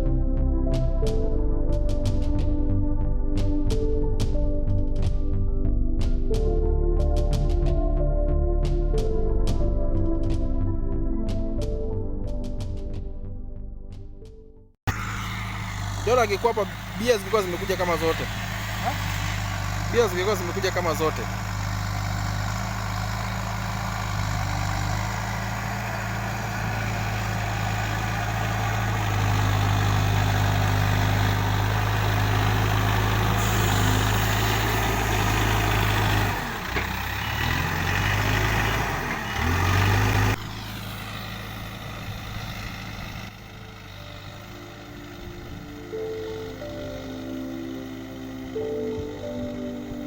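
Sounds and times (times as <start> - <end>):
backhoe diesel engine revving: 14.9 - 50.0.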